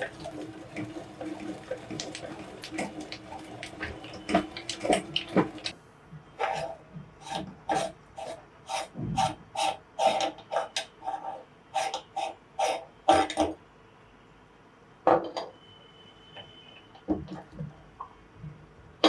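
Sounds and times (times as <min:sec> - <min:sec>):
meat grinder crushing candies: 0:00.0 - 0:05.7.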